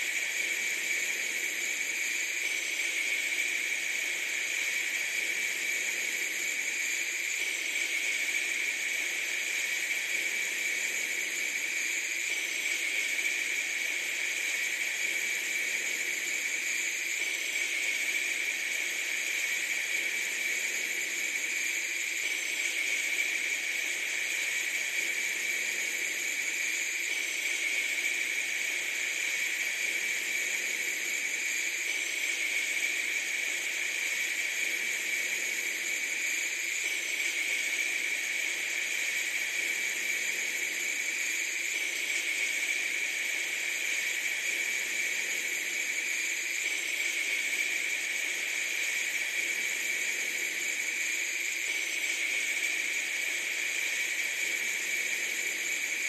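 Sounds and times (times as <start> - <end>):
steady high hiss: 0.0 - 56.0.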